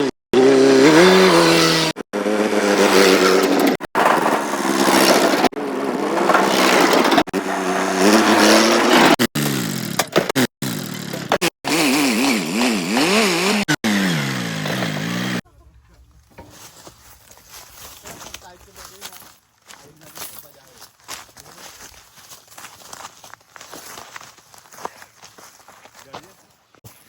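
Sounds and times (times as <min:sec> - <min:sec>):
vehicle engines revving: 0:00.0 - 0:16.6.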